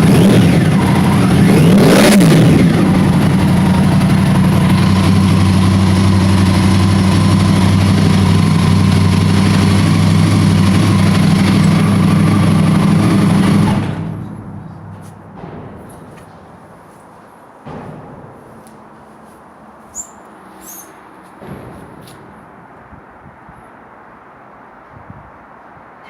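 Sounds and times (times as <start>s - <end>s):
motorcycle engine idling: 0.0s - 15.4s.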